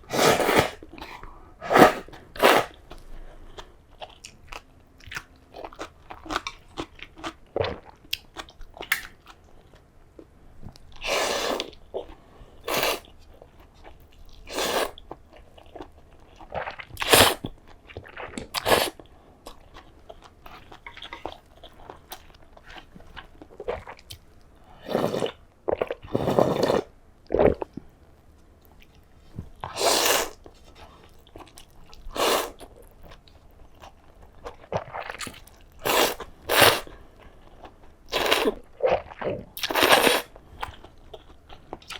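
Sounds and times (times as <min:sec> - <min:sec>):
person crunching and chewing: 0:00.1 - 0:09.4, 0:37.5 - 0:41.9.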